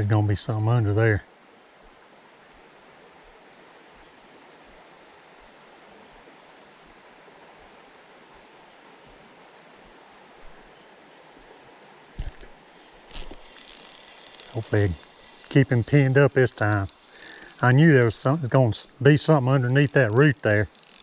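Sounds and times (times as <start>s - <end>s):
flowing creek water: 1.3s - 21.0s
high insect trill: 7.6s - 21.0s.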